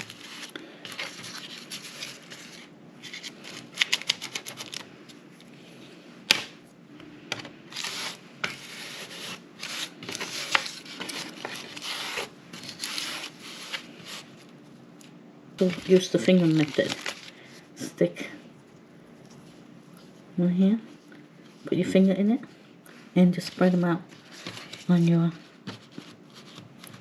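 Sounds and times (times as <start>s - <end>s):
hands rubbing and scraping dough: 0.0s - 4.8s, 7.7s - 14.6s.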